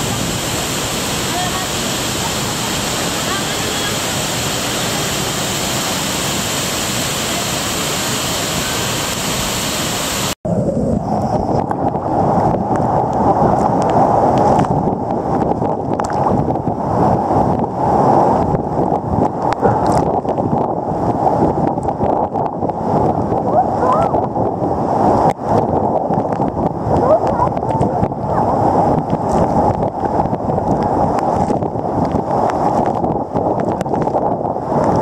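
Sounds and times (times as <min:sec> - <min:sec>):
waterfall roaring: 0:00.0 - 0:10.4.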